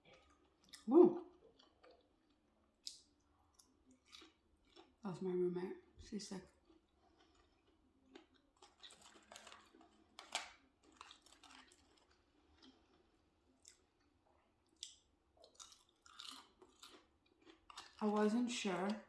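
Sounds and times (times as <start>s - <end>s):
chewing crispy food: 0.0s - 19.0s.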